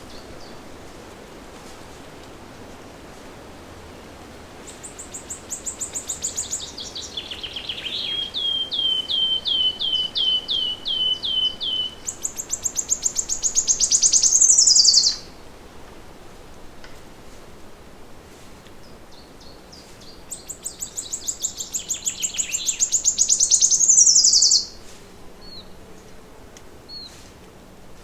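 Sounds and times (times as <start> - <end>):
songbird singing: 0.0 - 0.7, 4.6 - 15.4, 18.8 - 26.2, 26.9 - 27.2.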